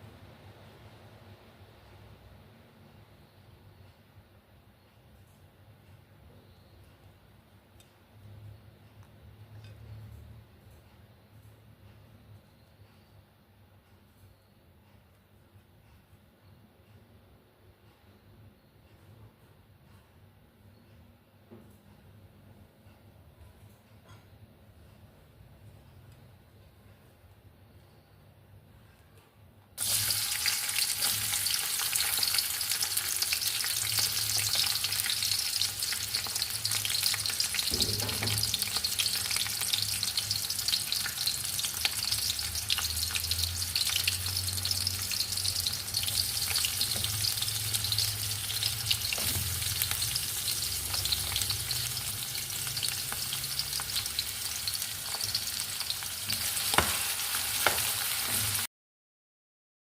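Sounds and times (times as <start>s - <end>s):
food sizzling in hot oil: 29.8s - 58.7s.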